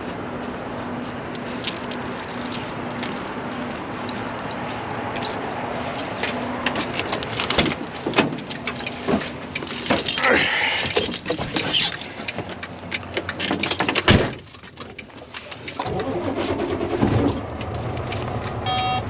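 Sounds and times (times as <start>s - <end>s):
truck engine and road noise: 0.0s - 19.0s
jingling and rattling: 1.3s - 16.3s.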